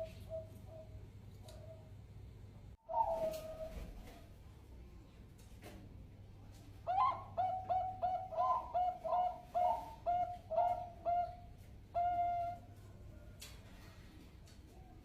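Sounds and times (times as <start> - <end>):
dove cooing: 0.0 - 1.9, 2.8 - 4.3, 6.9 - 12.8.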